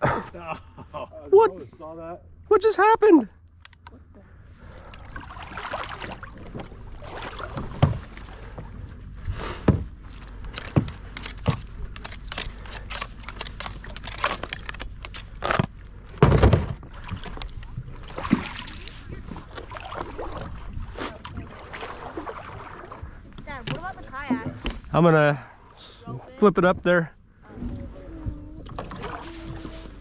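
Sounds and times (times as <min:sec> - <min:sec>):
wind and water rushing: 0:04.7 - 0:10.2, 0:16.8 - 0:26.7.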